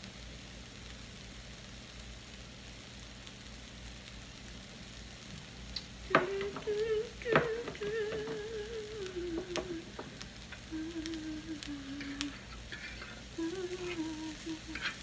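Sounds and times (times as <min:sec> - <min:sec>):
food sizzling in a pan: 0:00.0 - 0:15.0
utensil knocks: 0:06.1 - 0:10.9, 0:12.0 - 0:15.0
woman humming: 0:06.1 - 0:15.0.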